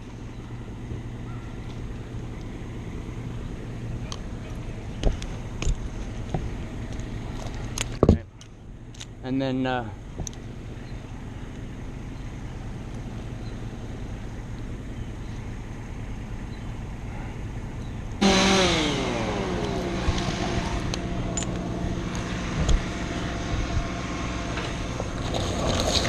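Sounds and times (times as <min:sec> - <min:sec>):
chainsaw idling and revving: 0:18.2 - 0:26.0.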